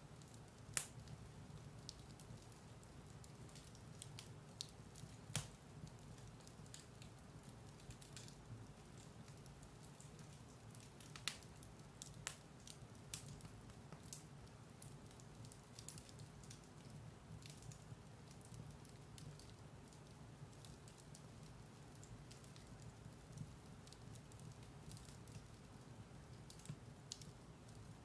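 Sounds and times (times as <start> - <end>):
firewood crackling and popping: 0.0 - 28.0.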